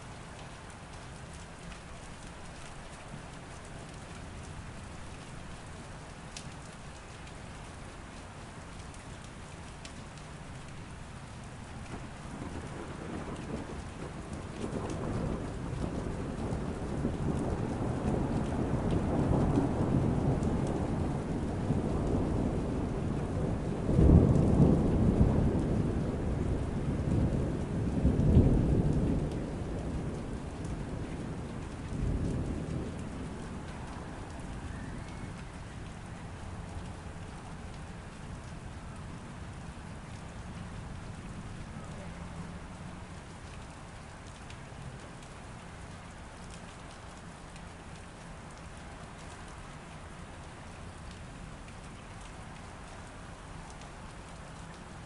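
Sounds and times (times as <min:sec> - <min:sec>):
steady rain: 0:00.0 - 0:55.0
thunder rumbling: 0:11.8 - 0:43.4.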